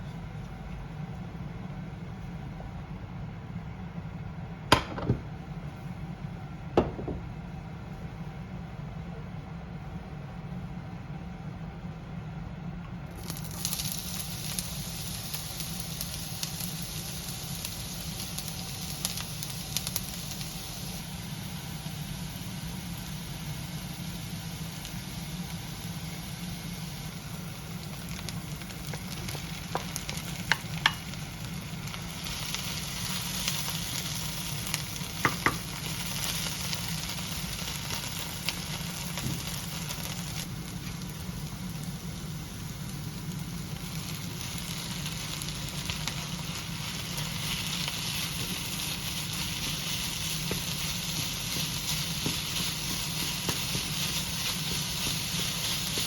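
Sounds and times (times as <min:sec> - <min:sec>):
steady low hum: 0:00.0 - 0:56.0
food sizzling in a pan: 0:13.1 - 0:56.0.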